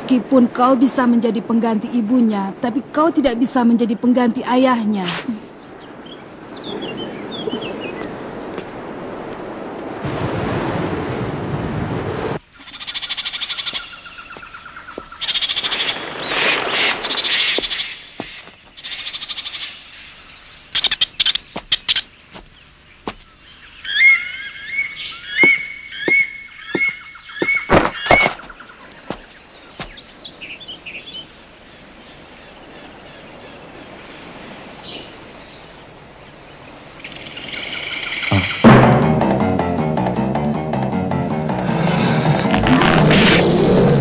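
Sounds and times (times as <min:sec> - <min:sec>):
bird chirping: 0:20.2 - 0:32.7.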